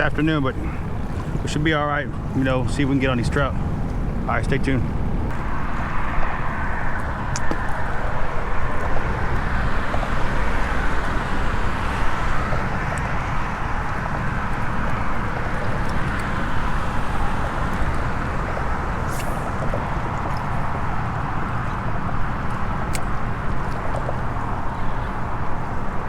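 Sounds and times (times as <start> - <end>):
rushing outdoor noise: 0.0 - 26.0.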